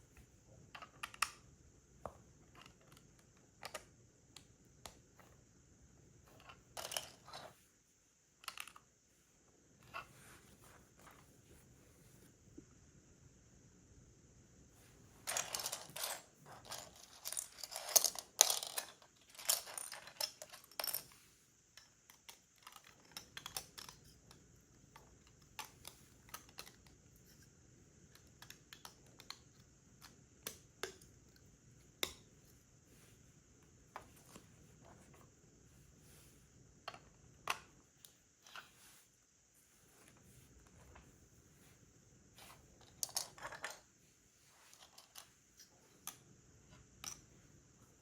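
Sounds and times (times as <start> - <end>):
plastic pieces clattering: 15.2 - 21.1.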